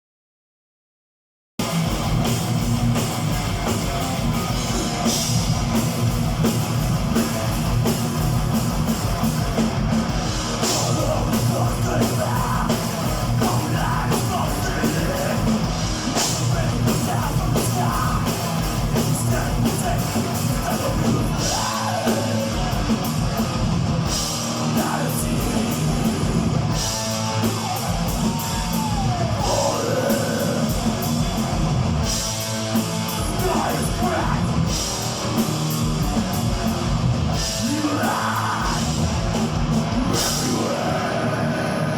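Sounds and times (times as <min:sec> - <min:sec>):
distorted electric guitars: 0:01.6 - 0:41.9
fast drums: 0:01.6 - 0:41.9
shouted vocals: 0:26.9 - 0:30.9, 0:37.6 - 0:39.1, 0:40.0 - 0:41.9.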